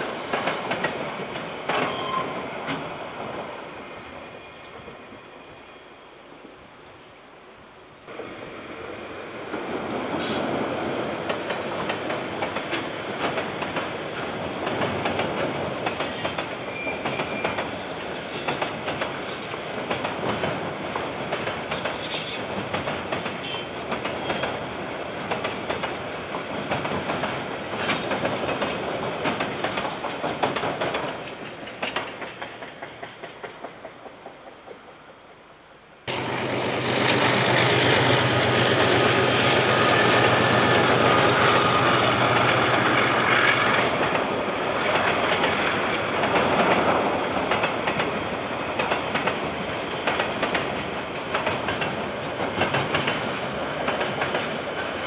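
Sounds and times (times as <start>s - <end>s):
train wheels clattering over rail joints: 14.5s - 35.0s, 36.1s - 55.0s
diesel locomotive engine drone: 36.1s - 55.0s.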